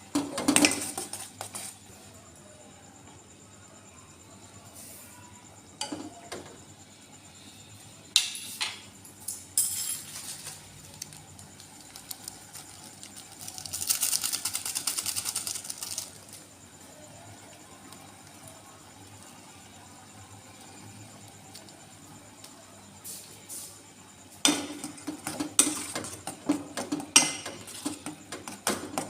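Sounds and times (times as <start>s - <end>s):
kitchen utensils clinking: 8.2s - 10.6s, 24.4s - 28.5s.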